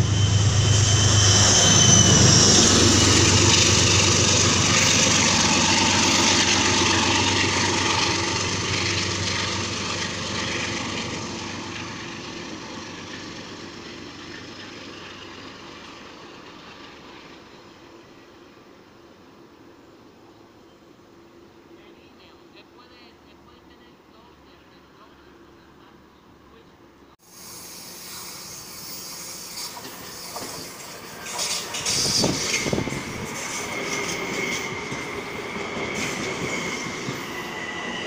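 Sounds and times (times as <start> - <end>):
high wheel squeal: 0.0 - 9.6, 27.3 - 38.0
train rumbling on rails: 0.0 - 22.4, 27.2 - 38.0.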